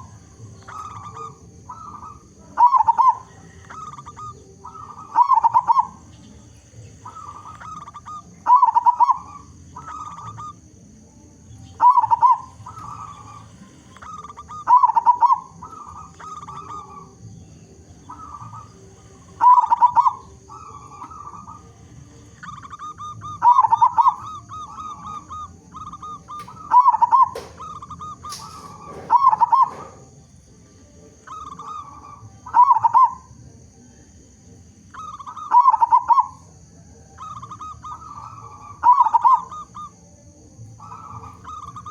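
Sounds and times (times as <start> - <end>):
dove cooing: 0.0 - 41.9.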